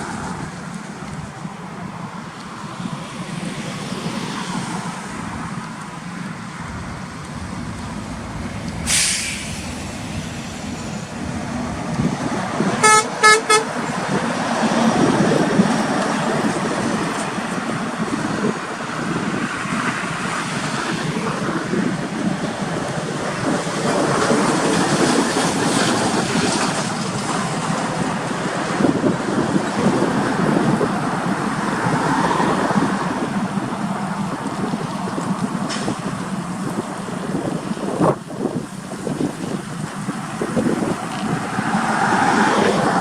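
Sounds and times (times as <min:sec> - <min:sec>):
traffic noise: 0:00.0 - 0:43.0
short hiss: 0:08.4 - 0:11.0
vehicle horn tooting: 0:12.8 - 0:13.7.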